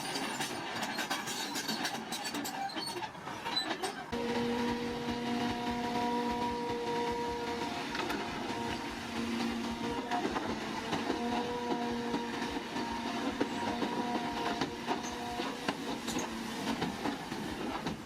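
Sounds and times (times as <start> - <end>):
steel tracks clanking and rattling: 0.0 - 18.0
machinery running: 4.1 - 17.9.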